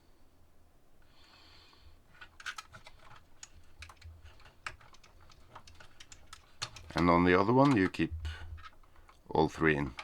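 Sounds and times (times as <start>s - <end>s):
small plastic clicks and taps: 2.2s - 9.2s.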